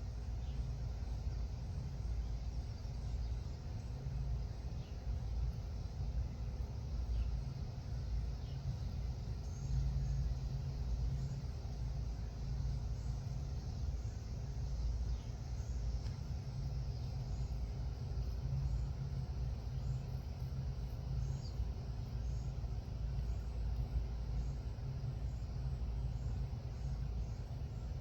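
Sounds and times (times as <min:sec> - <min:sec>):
faint bird chirps: 0:19.7 - 0:28.0.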